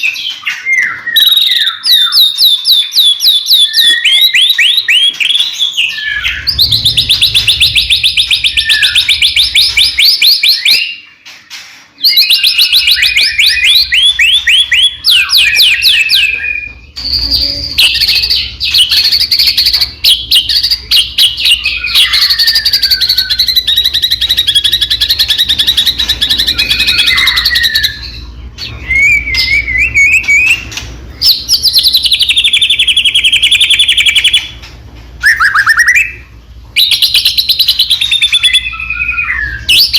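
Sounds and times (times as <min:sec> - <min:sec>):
bird singing trills: 0:00.0 - 0:34.6, 0:35.2 - 0:39.9
low hum: 0:05.9 - 0:10.2.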